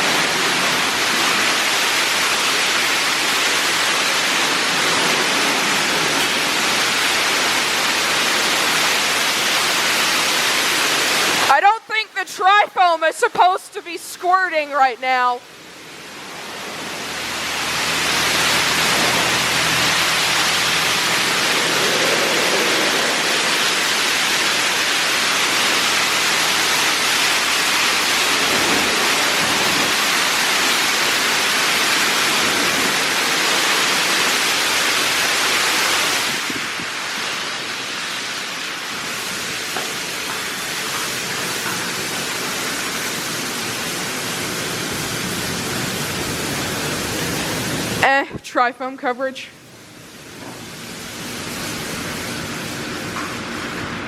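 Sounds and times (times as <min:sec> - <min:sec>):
water spray hissing: 0:16.1 - 0:42.9.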